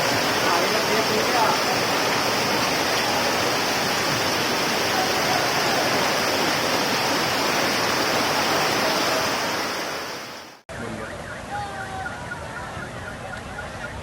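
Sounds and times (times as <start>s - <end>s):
heavy rain: 0.0s - 10.6s
rainwater rushing through street: 0.0s - 14.0s.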